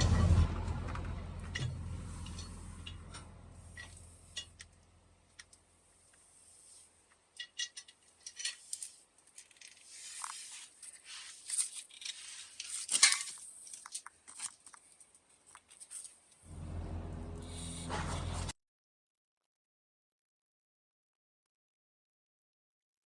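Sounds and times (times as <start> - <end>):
low steady hum: 0.0 - 6.6, 16.5 - 18.5
tools clicking and scraping: 1.5 - 16.2.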